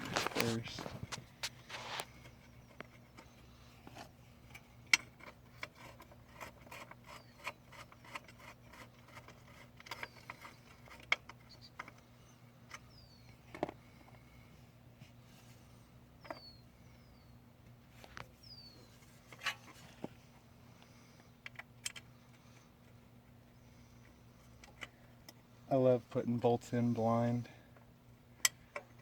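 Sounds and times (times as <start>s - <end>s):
bird chirping: 11.4s - 13.5s, 16.2s - 17.5s, 18.3s - 19.0s
metallic clicks of tools on engine: 21.4s - 23.0s, 24.0s - 25.4s, 27.8s - 29.0s.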